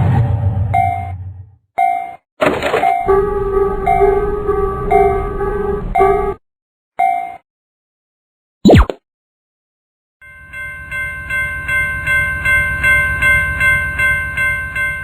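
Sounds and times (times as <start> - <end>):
pulsing low train rumble: 0.0 - 1.6, 3.1 - 6.4
train horn chord: 3.1 - 6.4.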